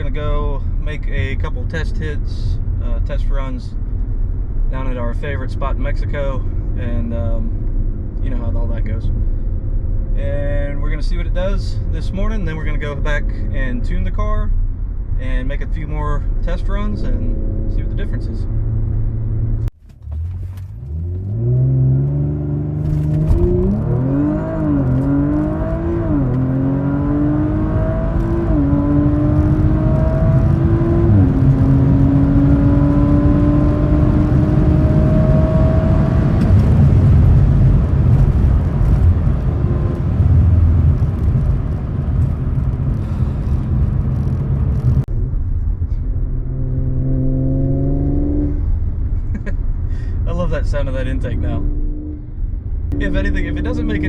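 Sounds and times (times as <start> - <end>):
wind and road noise: 0.0 - 54.0
car engine accelerating: 16.4 - 54.0.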